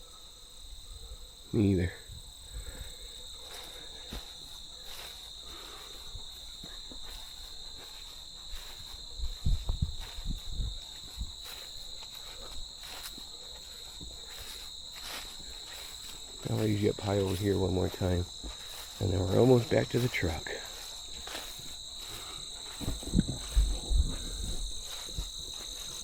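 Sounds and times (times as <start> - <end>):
crickets chirping: 0.0 - 26.0
low thumps: 22.8 - 25.3.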